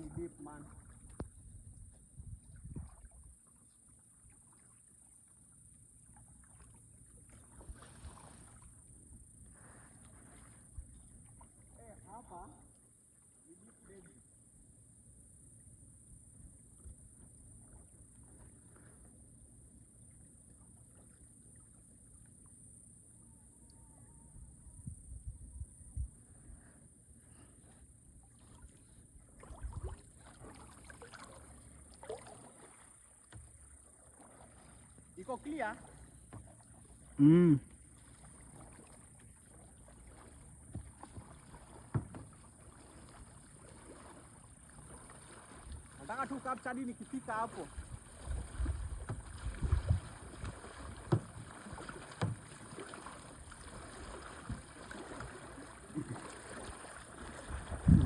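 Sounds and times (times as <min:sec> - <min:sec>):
paddle dipping into water: 0:00.0 - 0:14.2, 0:16.7 - 0:25.0, 0:26.0 - 0:58.0
water dripping and splashing: 0:29.4 - 0:34.8, 0:38.2 - 0:58.0
thump: 0:41.9 - 0:42.4, 0:51.1 - 0:51.4, 0:52.2 - 0:52.4.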